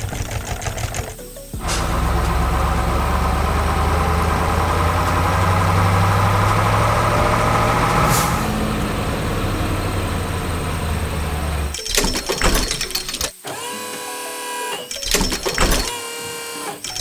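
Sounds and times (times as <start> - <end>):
heavy vehicle engine running: 0.0 - 11.8
short sharp air hiss: 1.6 - 2.8, 7.9 - 8.7.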